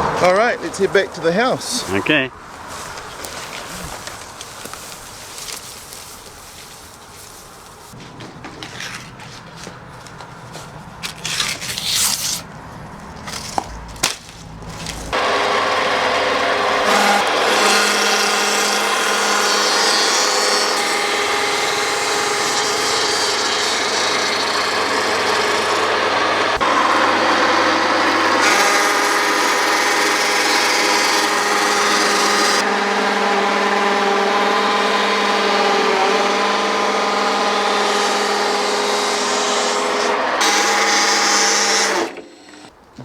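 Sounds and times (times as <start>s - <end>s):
rough scraping of leaves: 1.7s - 15.2s
motor hum: 15.2s - 42.8s.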